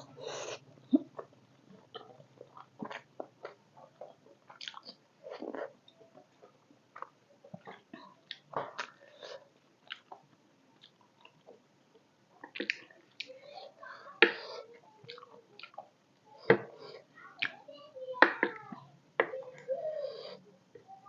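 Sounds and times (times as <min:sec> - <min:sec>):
person chewing food: 0:00.0 - 0:13.4, 0:15.0 - 0:15.9.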